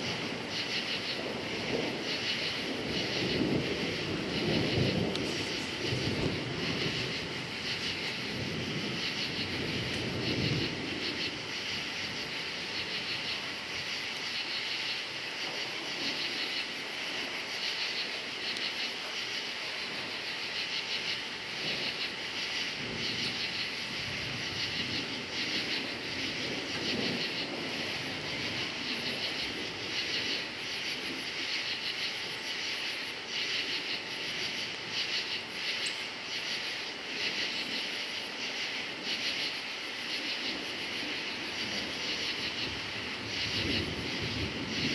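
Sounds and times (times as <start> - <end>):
low thunder rumbles: 0.0 - 18.0, 19.8 - 35.6, 40.4 - 44.9
crickets chirping: 0.0 - 44.9.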